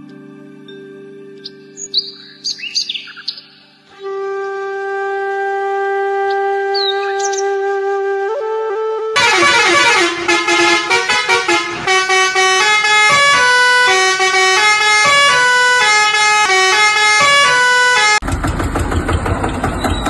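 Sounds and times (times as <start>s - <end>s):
toy electronic horn tune: 9.2s - 18.2s.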